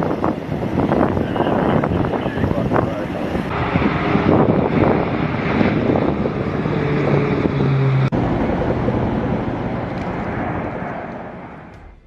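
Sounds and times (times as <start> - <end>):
wind on microphone: 0.0 - 12.0
vehicle running: 3.5 - 12.0.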